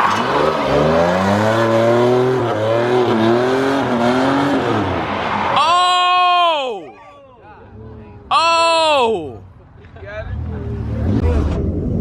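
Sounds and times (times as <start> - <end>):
car engine revving hard: 0.0 - 5.1
man shouting: 5.6 - 7.4, 8.3 - 9.4.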